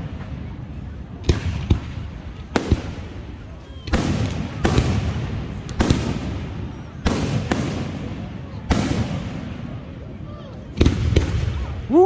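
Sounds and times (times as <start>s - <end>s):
fireworks exploding: 0.0s - 12.0s.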